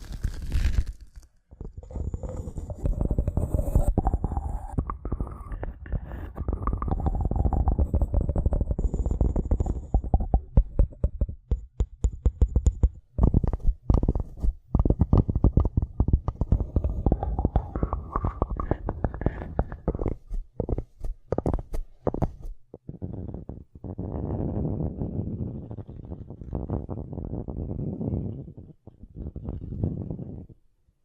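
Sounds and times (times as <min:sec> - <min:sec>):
tapping and scratching: 0:00.0 - 0:23.3.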